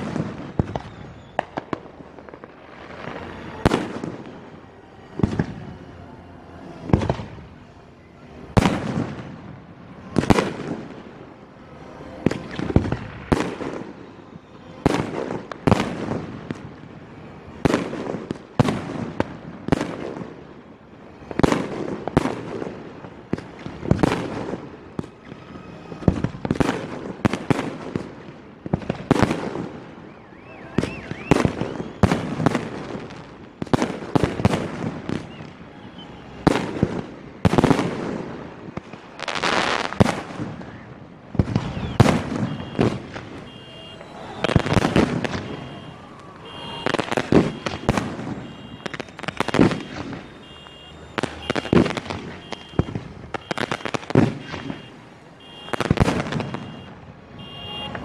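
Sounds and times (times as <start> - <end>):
fireworks bursting with echo: 0.0 - 58.0.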